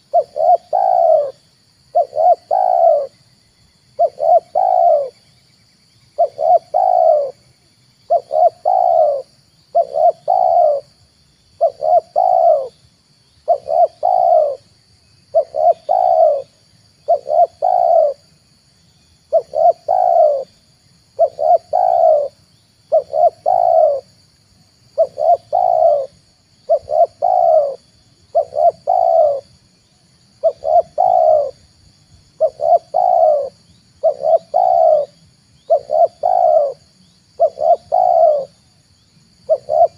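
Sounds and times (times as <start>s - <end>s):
dove cooing: 0.0s - 3.2s, 4.0s - 5.2s, 6.2s - 7.4s, 8.1s - 11.0s, 11.6s - 12.8s, 13.4s - 14.7s, 15.3s - 18.3s, 19.3s - 24.2s, 24.9s - 29.6s, 30.4s - 31.7s, 32.3s - 38.7s, 39.4s - 39.9s
faint high-pitched whine: 0.0s - 39.9s.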